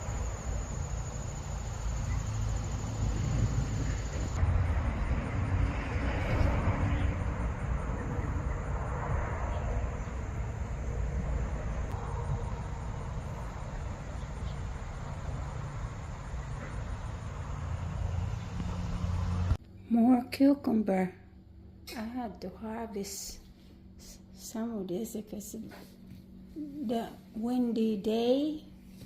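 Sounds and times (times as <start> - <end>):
wind buffeting microphone: 2.0 - 19.5.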